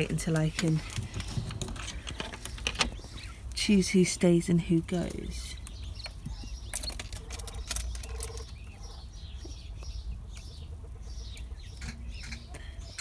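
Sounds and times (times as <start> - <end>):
small clicks and scratches: 0.0 - 3.4, 5.0 - 13.0
quail chirping: 4.9 - 13.0.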